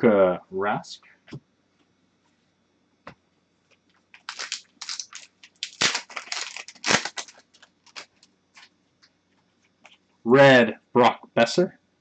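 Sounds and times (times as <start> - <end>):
plastic wrapper crinkling: 3.8 - 8.7.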